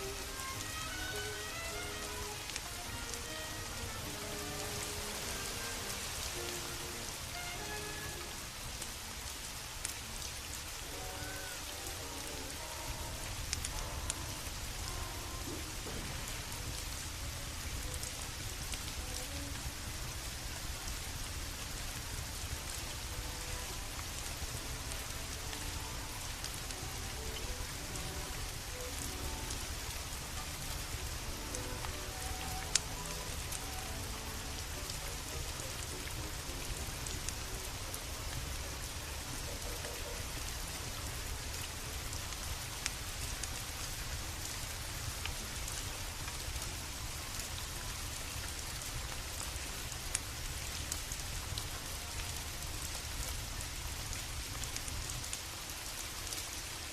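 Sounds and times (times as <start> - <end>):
steady rain falling: 0.0 - 56.9
wood fire crackling and popping: 10.8 - 52.6.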